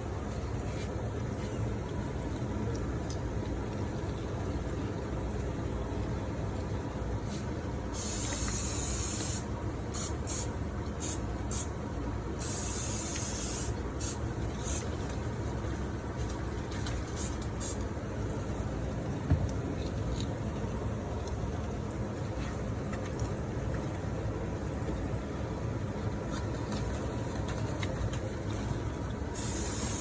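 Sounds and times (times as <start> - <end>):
cooking spray hissing: 8.0 - 11.7, 12.4 - 14.9, 29.3 - 30.0.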